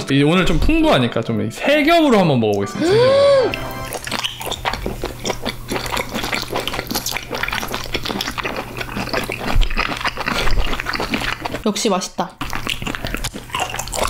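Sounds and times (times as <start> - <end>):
wet chewing and smacking: 3.9 - 11.7, 12.4 - 14.0.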